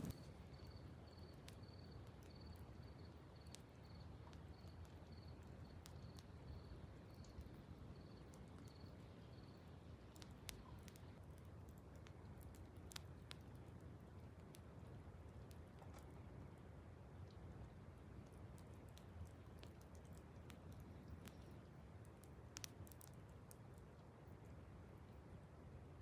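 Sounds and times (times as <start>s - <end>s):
cricket chirping: 0.0s - 10.8s
faint clicks: 18.2s - 24.0s.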